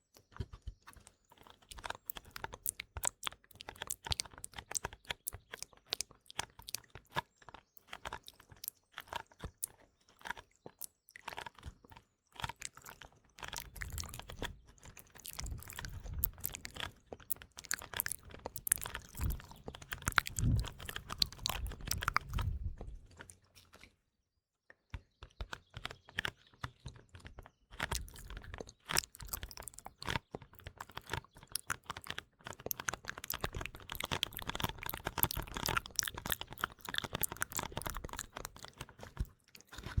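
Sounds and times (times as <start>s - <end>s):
wet mouth clicks and smacks: 1.7s - 7.2s, 12.4s - 22.7s, 27.8s - 40.0s.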